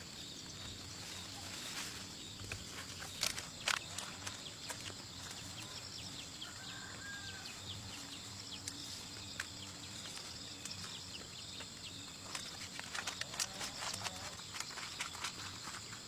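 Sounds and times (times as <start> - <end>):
small clicks and chirps: 2.4 - 5.8, 8.5 - 16.0.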